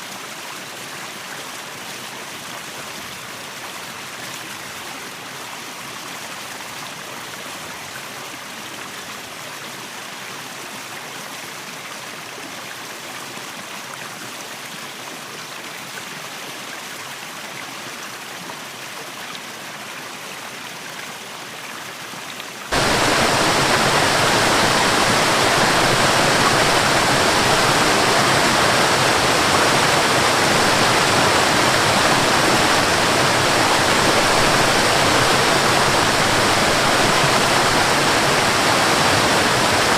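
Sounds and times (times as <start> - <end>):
waterfall rushing water: 22.7 - 39.9.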